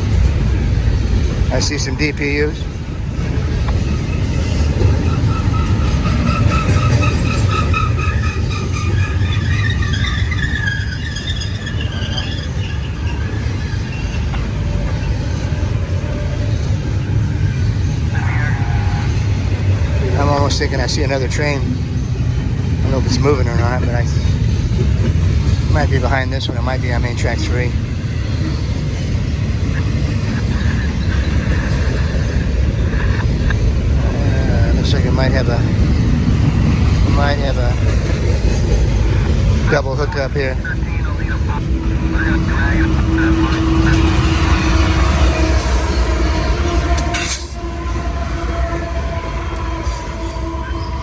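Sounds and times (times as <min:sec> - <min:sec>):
freight train rumbling: 0:00.0 - 0:51.0
high-pitched wheel squeal: 0:03.9 - 0:15.4.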